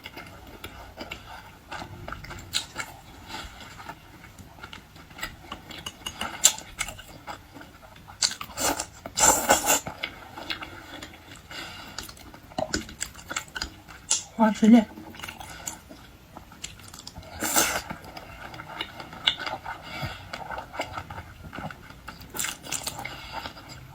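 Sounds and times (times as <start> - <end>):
chewing and biting food: 0.0 - 14.4, 15.0 - 23.9
burst of noise: 1.8 - 4.6.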